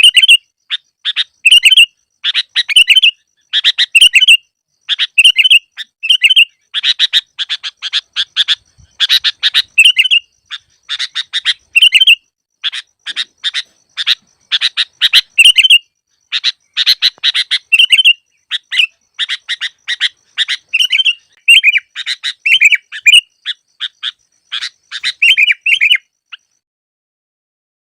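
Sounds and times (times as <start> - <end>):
bird chattering and whistling: 0.0 - 26.6.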